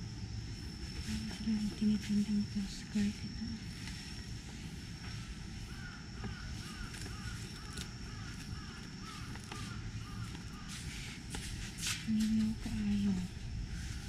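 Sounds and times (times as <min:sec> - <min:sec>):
low background noise: 0:00.0 - 0:14.0
birds calling: 0:05.0 - 0:11.3.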